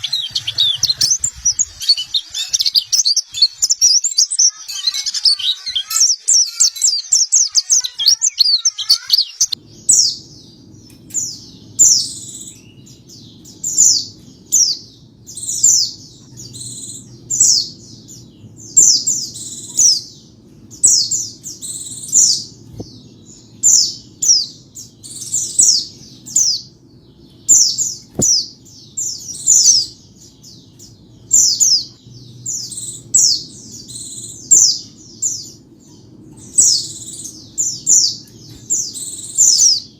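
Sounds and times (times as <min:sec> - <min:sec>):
bird twittering: 0:00.0 - 0:10.2
high down-slurred bird chirps: 0:00.0 - 0:39.9
low steady hum: 0:09.4 - 0:39.9.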